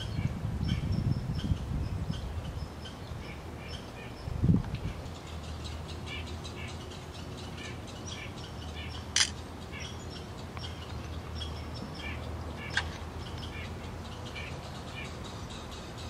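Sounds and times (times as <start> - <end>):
birds chirping: 0.0 - 16.0
sharp clicks: 9.1 - 9.4.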